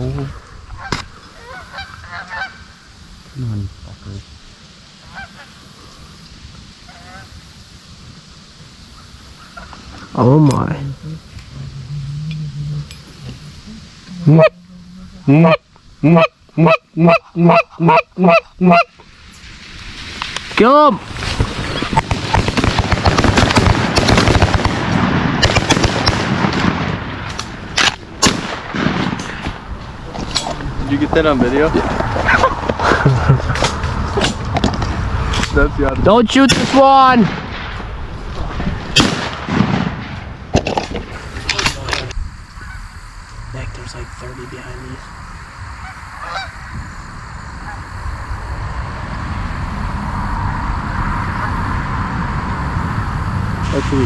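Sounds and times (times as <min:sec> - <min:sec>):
wind rumbling on microphone: 0:00.0 - 0:54.0
waterfowl call: 0:00.8 - 0:02.7, 0:05.1 - 0:05.6, 0:06.8 - 0:07.3, 0:14.1 - 0:19.0, 0:45.8 - 0:46.8
shotguns firing: 0:21.9 - 0:29.6, 0:36.4 - 0:37.8, 0:38.9 - 0:42.0.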